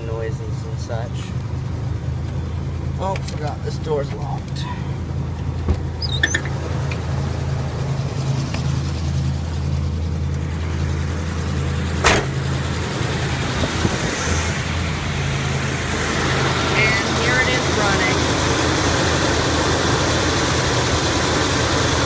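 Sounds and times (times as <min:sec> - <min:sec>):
car engine idling: 0:00.0 - 0:22.0
sharp knock: 0:12.0 - 0:12.4.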